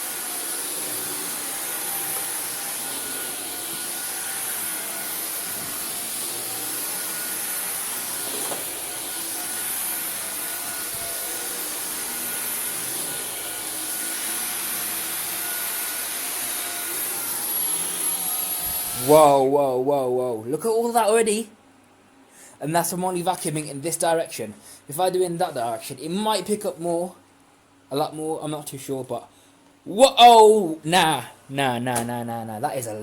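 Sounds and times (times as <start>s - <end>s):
vacuum cleaner on carpet: 0.0s - 19.4s.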